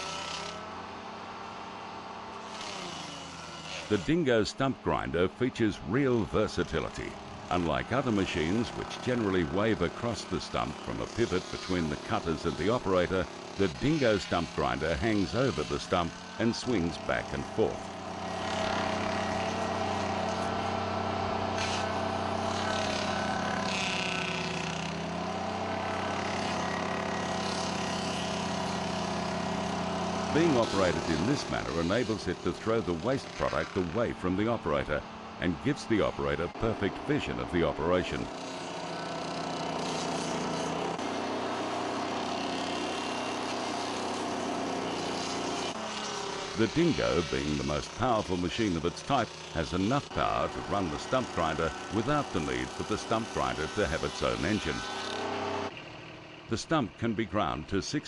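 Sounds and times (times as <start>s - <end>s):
mini loader engine running: 0.0s - 56.5s
stump grinder cutting: 0.0s - 57.1s.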